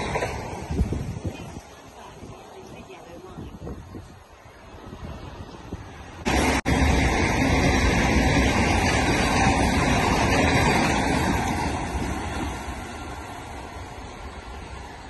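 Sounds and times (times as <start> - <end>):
train passing at speed: 0.0 - 15.0.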